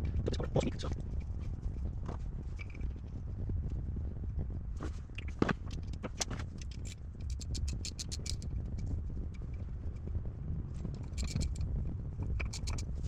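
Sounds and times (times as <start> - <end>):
steady low rumble: 0.0 - 13.0
small parts clicking and scraping: 2.5 - 3.0, 4.8 - 9.6, 10.8 - 11.7, 12.3 - 13.0.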